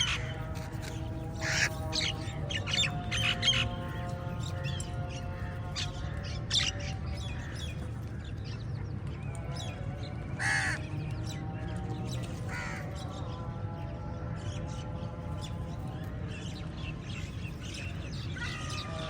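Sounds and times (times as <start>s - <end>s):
crows cawing: 1.4s - 2.2s, 10.4s - 10.8s, 12.5s - 12.9s.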